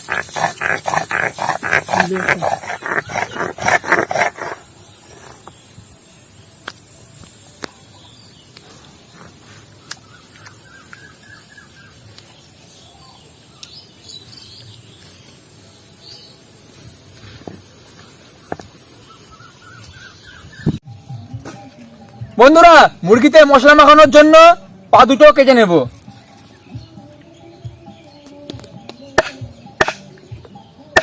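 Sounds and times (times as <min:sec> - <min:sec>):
stone grinding scraping strokes: 0:00.0 - 0:05.5
high insect drone: 0:00.0 - 0:12.4.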